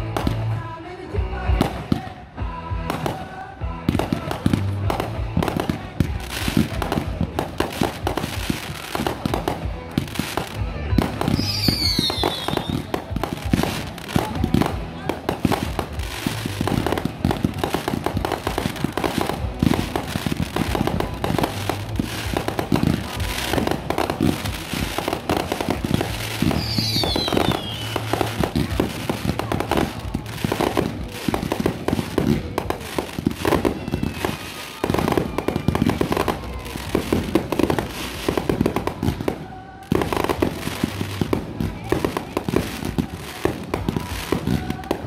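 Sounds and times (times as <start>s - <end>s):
fireworks bangs and crackles: 0.0s - 45.0s
falling firework whistle: 11.3s - 12.9s, 26.0s - 28.8s.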